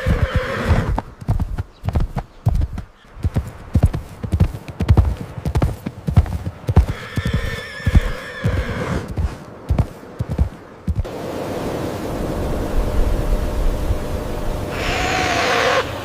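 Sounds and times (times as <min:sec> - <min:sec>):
horse whinnying: 0:00.0 - 0:01.0, 0:06.8 - 0:09.1, 0:14.7 - 0:15.9
horse hooves clattering: 0:00.0 - 0:11.1.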